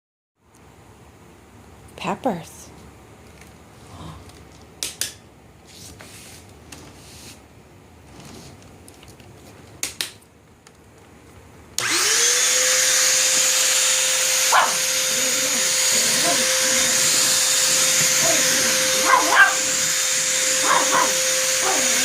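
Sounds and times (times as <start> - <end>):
vacuum cleaner whining: 11.8 - 22.0.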